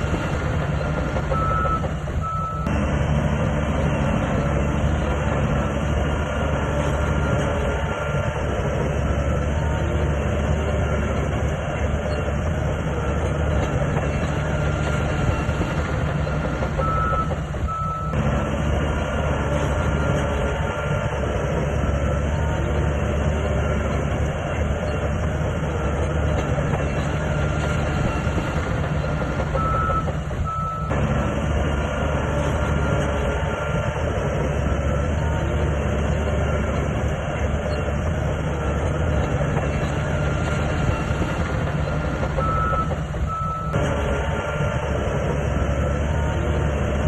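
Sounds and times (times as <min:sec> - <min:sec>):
bulldozer diesel engine running: 0:00.0 - 0:47.0
reversing alarm beeps: 0:01.2 - 0:02.7, 0:16.8 - 0:18.2, 0:29.5 - 0:30.9, 0:42.4 - 0:43.8.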